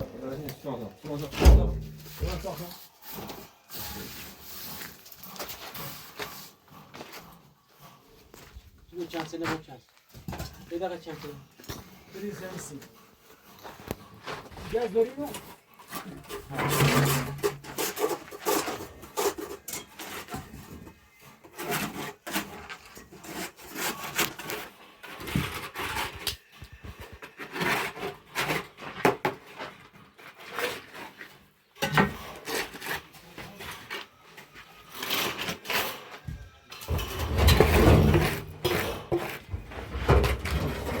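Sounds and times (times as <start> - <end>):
scraping and rubbing strokes: 1.7 - 8.1.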